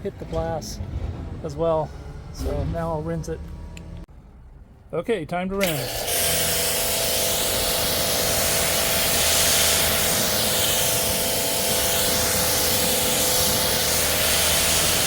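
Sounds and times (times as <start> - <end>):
pressure washer water jet hiss: 5.6 - 15.0
pump motor hum: 5.6 - 15.0.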